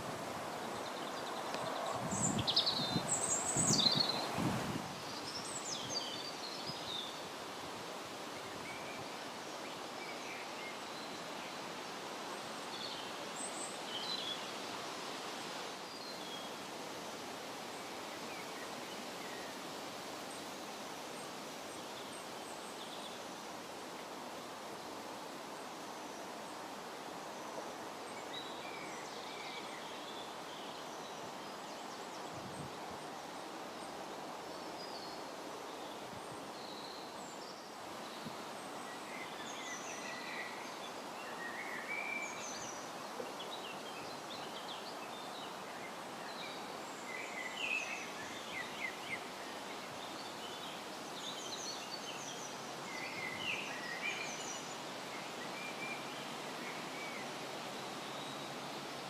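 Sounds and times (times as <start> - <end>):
wind rushing through foliage: 0.0 - 59.0
small birds chirping: 0.6 - 4.4.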